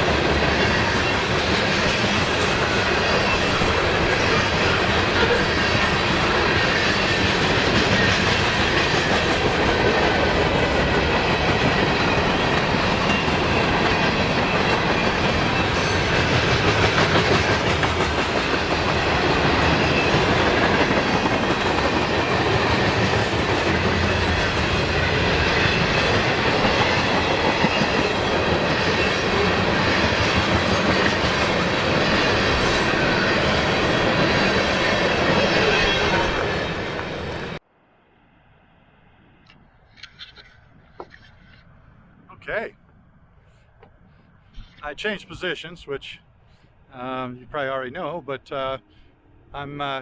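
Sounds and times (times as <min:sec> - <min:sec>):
freight train rumbling past: 0:00.0 - 0:37.7.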